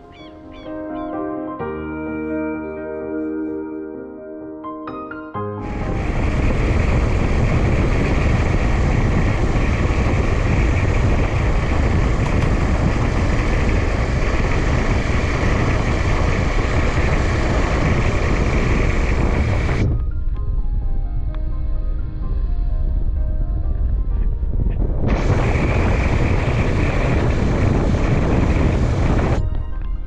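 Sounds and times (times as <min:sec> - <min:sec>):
motorcycle engine running: 0:05.6 - 0:20.0, 0:25.0 - 0:29.4
wind rushing over microphone: 0:05.6 - 0:30.0.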